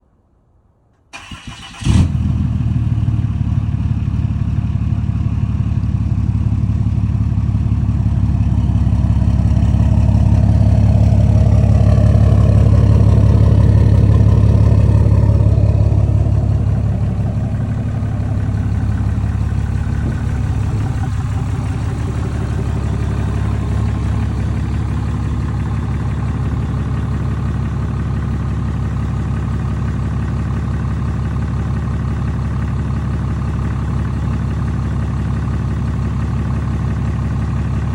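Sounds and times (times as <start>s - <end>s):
engine idling: 1.1s - 37.9s
engine cranking: 1.2s - 1.9s.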